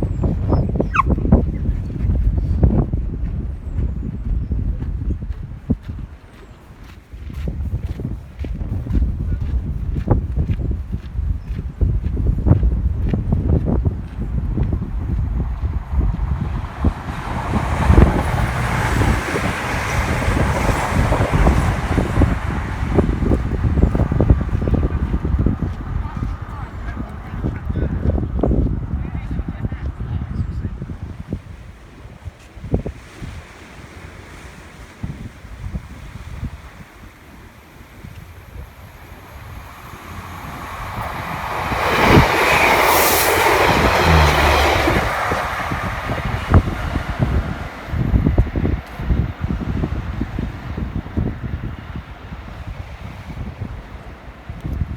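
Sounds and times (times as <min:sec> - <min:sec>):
wind buffeting microphone: 0:00.0 - 0:54.9
train passing: 0:12.3 - 0:54.9.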